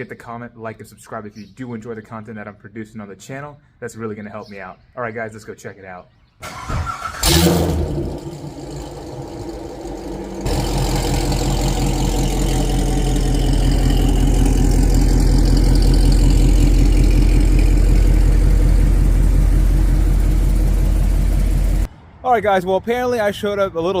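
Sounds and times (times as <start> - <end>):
car engine running: 7.2 - 21.9.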